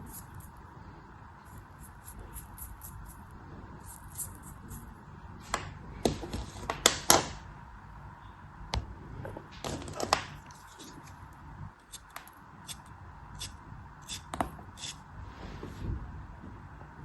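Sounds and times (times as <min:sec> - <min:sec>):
blade cutting crumbly block: 0:11.8 - 0:15.0.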